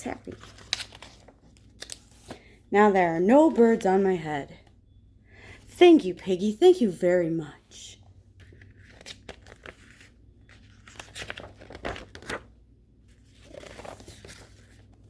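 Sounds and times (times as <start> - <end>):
paper pages rustling: 0.0 - 2.5, 8.3 - 15.0.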